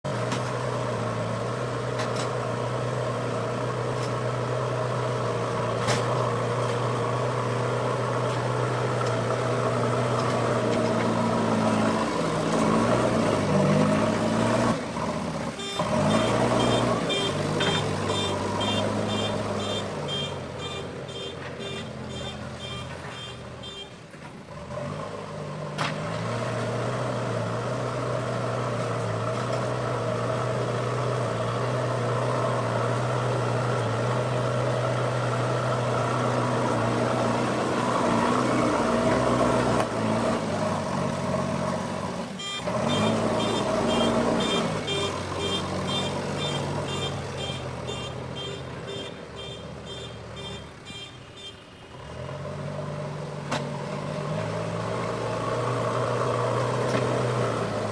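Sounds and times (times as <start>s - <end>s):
diesel engine running under load: 0.0s - 57.9s
reversing alarm beeping: 15.6s - 23.9s, 42.4s - 51.6s.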